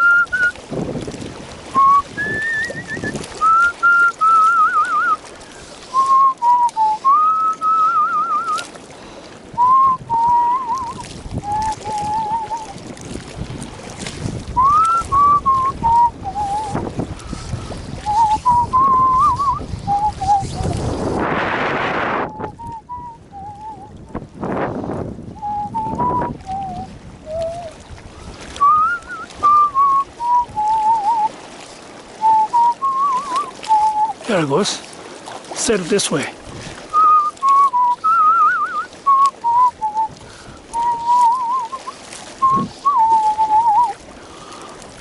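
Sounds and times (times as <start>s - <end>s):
man whistling a tune: 0.0s - 0.6s, 1.7s - 5.2s, 5.9s - 8.7s, 9.5s - 12.8s, 14.6s - 16.8s, 17.5s - 20.8s, 22.2s - 23.9s, 25.4s - 27.8s, 28.5s - 31.3s, 32.2s - 34.2s, 36.9s - 44.0s
wind buffeting microphone: 0.0s - 45.0s.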